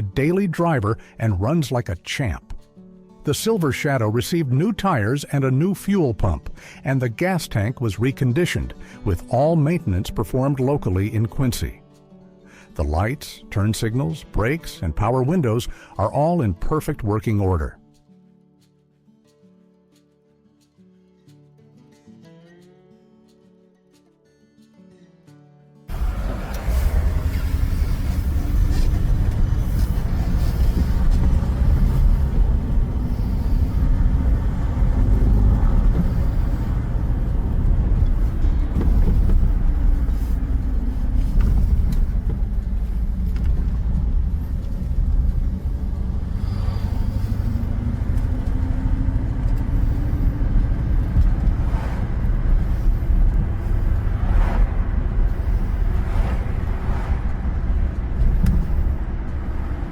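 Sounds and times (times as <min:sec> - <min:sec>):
car engine rumbling: 0:25.9 - 0:59.9.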